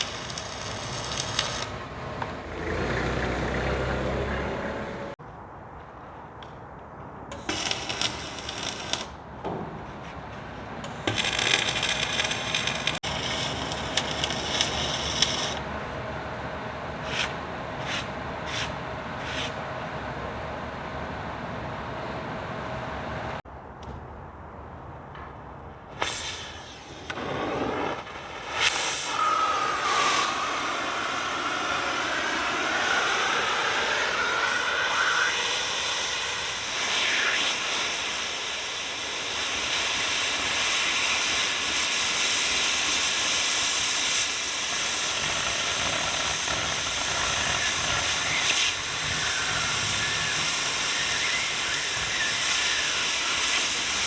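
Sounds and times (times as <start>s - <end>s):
cutting torch hissing: 0.0s - 1.8s, 7.3s - 9.3s, 10.8s - 15.7s, 26.0s - 54.0s.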